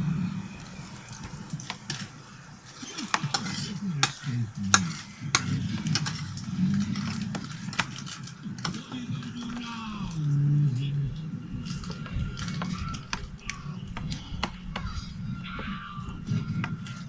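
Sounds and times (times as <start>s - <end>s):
slime being stirred by hand: 0.6s - 10.3s.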